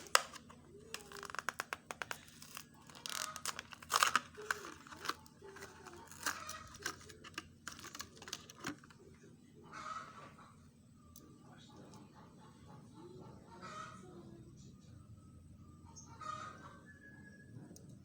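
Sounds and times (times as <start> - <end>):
toy packaging tearing and crinkling: 0.0 - 9.0.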